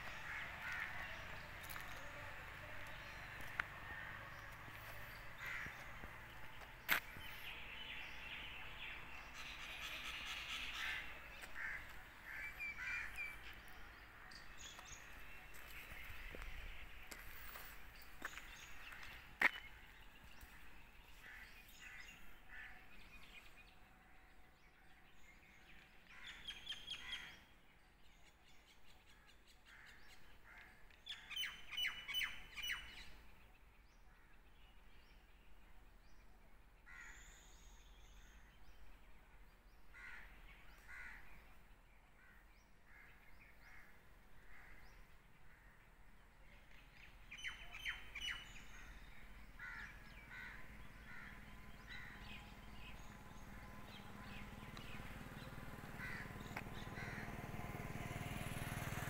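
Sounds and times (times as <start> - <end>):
harsh bird calls: 0.0 - 23.5
wild birds calling: 0.0 - 23.9, 39.8 - 46.1, 46.7 - 59.0.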